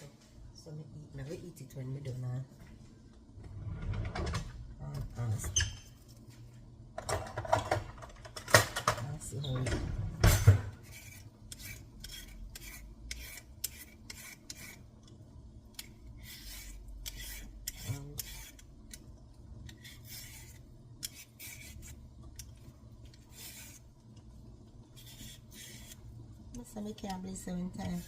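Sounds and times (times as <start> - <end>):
knife scraping vegetable skin: 10.8 - 14.9, 15.8 - 18.7, 19.7 - 22.0, 23.1 - 23.9, 25.0 - 26.0.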